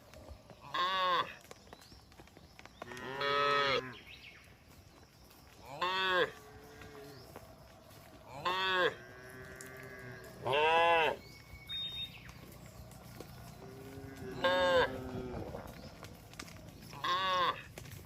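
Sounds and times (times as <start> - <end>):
cattle mooing: 8.3 - 11.2, 13.4 - 15.8.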